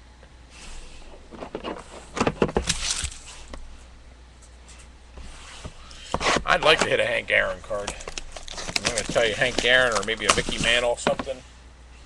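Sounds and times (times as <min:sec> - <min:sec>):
card packaging rustling and crackling: 0:01.3 - 0:03.5, 0:06.0 - 0:11.2.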